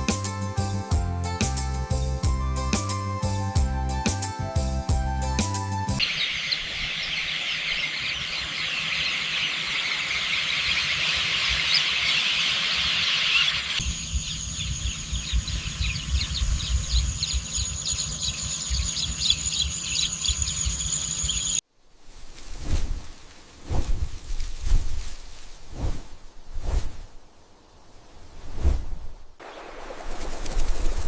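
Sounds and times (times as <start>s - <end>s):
high-pitched bird chirping: 6.0s - 21.6s.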